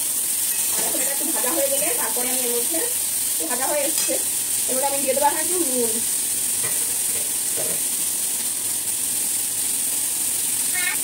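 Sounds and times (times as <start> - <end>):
vegetables frying in oil: 0.0 - 11.0
spatula stirring in pan: 0.3 - 5.2, 6.5 - 8.0.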